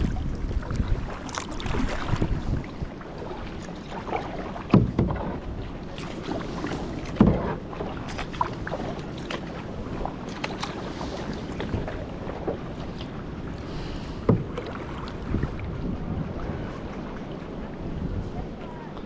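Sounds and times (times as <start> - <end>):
kayak paddle splashing in water: 0.0 - 17.1.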